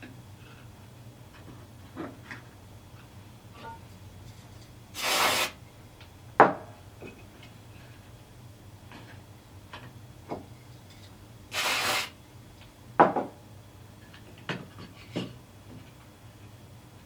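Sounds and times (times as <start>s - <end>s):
knocks on workbench: 13.0s - 13.3s.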